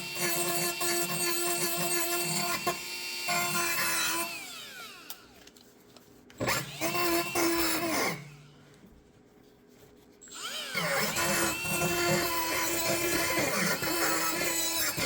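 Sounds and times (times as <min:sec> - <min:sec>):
handheld power tool running: 0:06.4 - 0:08.3, 0:10.3 - 0:15.0.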